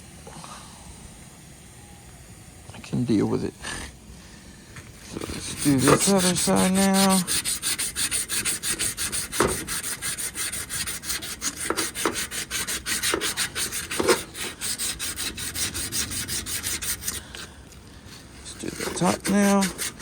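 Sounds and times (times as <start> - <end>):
sandpaper rubbing copper tubing: 5.0 - 17.5, 18.1 - 20.0.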